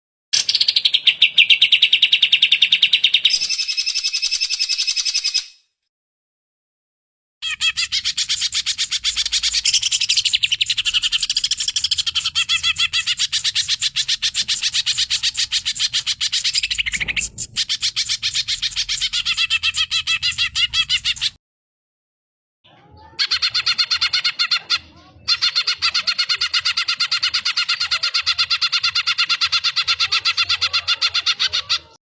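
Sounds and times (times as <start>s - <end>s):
bird singing rapid high notes: 7.4s - 21.4s.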